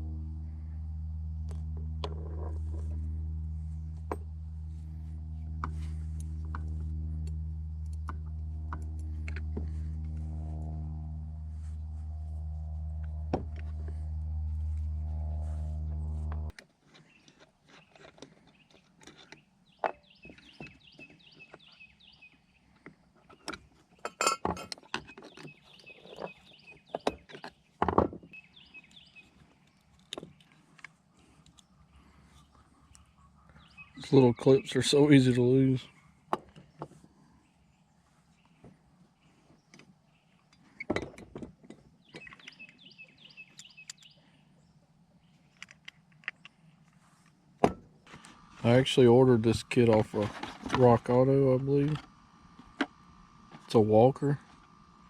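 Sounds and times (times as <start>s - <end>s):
steady low hum: 0.0s - 16.6s, 28.3s - 55.0s.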